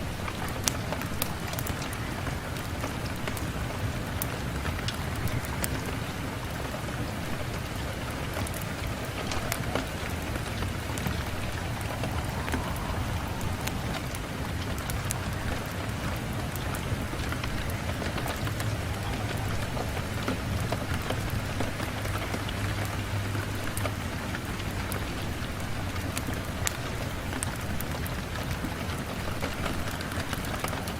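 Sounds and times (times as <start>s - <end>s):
rain on a window: 0.0s - 30.9s
low rumble: 9.5s - 20.7s.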